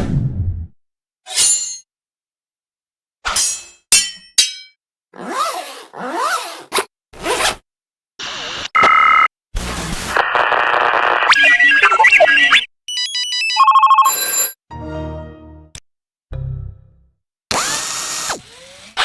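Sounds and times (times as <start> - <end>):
loud two-tone beep: 11.3 - 14.6.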